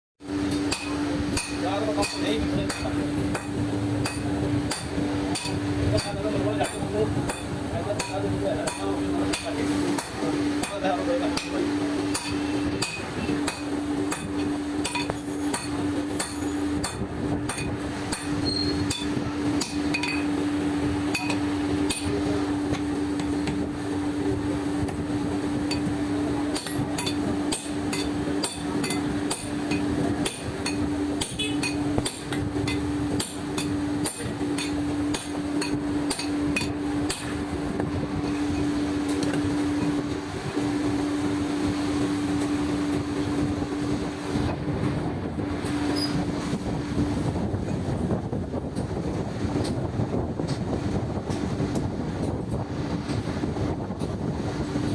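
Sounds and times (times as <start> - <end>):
steady hum: 0.2 - 54.9
hammer striking metal: 0.5 - 10.8, 11.4 - 20.3, 21.0 - 23.6, 26.5 - 37.4.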